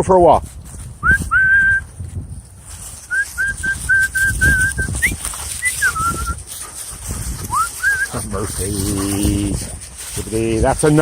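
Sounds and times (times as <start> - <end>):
wind buffeting microphone: 0.0 - 11.0
person whistling: 1.0 - 1.9, 3.1 - 6.4, 7.5 - 8.2.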